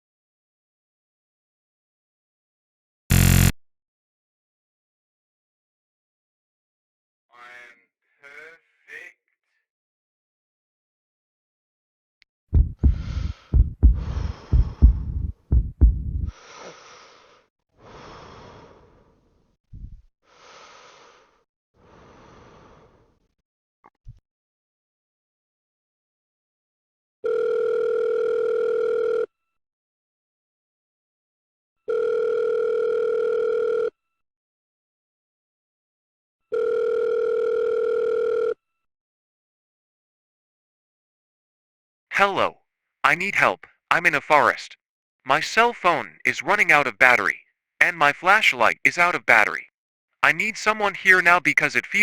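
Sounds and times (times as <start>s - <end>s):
heartbeat thumps: 12.5s - 16.3s
slow heavy breaths: 12.8s - 15.2s, 16.3s - 19.1s, 20.3s - 23.1s.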